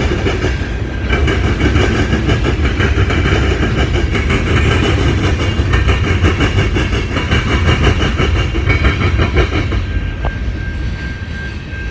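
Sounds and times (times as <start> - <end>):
freight train cars rolling past: 0.0 - 11.9.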